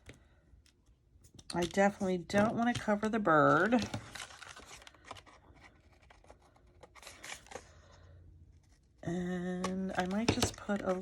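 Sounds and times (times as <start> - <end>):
woman speaking: 1.5 - 4.0, 9.0 - 11.0.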